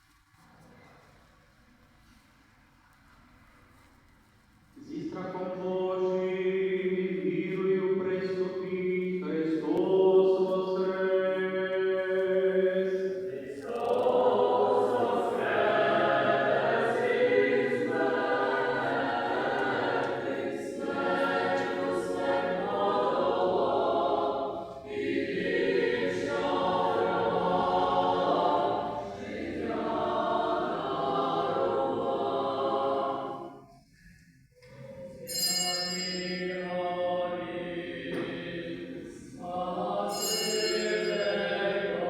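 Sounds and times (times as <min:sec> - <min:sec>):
choir singing unaccompanied chant: 0:05.4 - 0:33.9, 0:36.6 - 0:40.2, 0:40.9 - 0:42.0.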